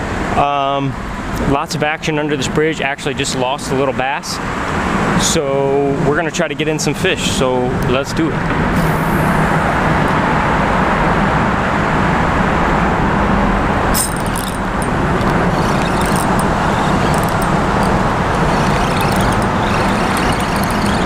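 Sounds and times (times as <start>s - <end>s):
heavy highway traffic: 4.4s - 5.2s, 7.4s - 19.9s.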